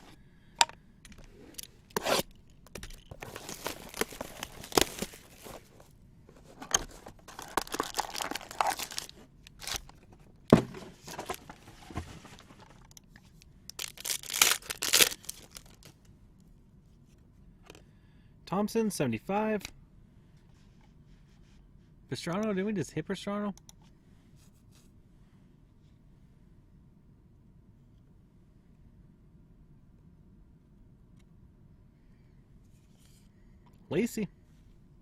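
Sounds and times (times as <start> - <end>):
card pack wrappers tearing: 1.9 - 5.8, 6.4 - 11.6, 13.7 - 16.0.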